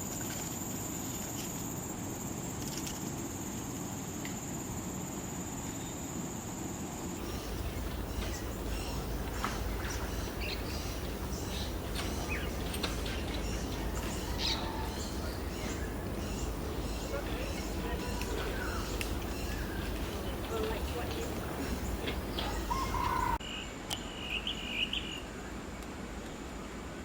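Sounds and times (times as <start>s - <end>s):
birds chirping and calling: 7.2s - 23.4s
low rumble: 7.2s - 23.4s.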